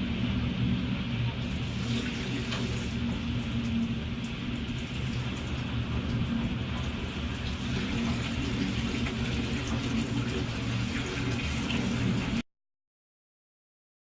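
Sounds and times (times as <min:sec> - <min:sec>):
low rumble: 0:00.0 - 0:12.4
rushing water: 0:01.4 - 0:12.4.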